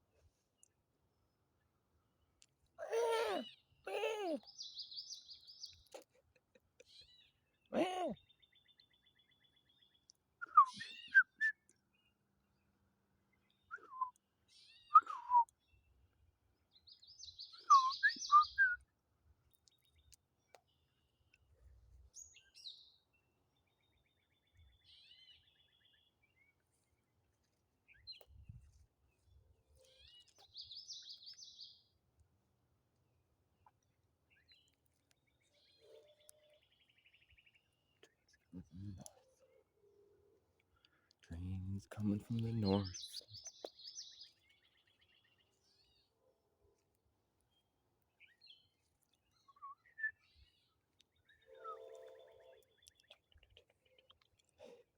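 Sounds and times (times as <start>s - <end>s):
faint songbirds singing: 0.0s - 54.9s
faint bird chirps: 2.8s - 12.2s, 13.3s - 15.9s, 16.7s - 18.9s, 27.9s - 31.9s, 33.6s - 46.3s, 48.2s - 54.9s
songbird trilling: 17.2s - 18.8s.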